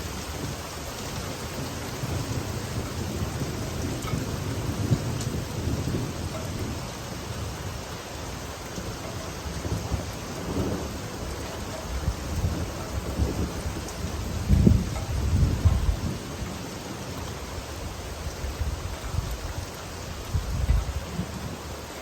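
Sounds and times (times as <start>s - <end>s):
rolling thunder rumbles: 0.0s - 21.6s
steady rain falling: 0.0s - 22.0s.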